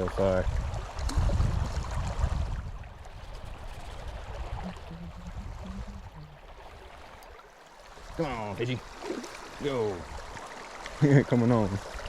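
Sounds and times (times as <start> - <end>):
low rumbling on microphone: 0.0 - 6.6
river water flowing: 0.0 - 12.0.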